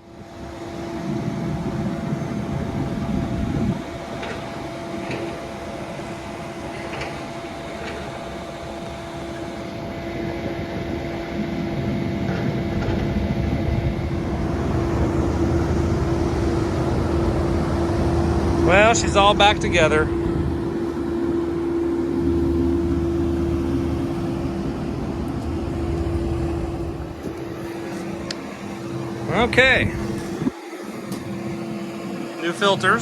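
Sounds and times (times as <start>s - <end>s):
ventilation unit humming: 0.0s - 33.0s
low rumble: 12.7s - 30.5s.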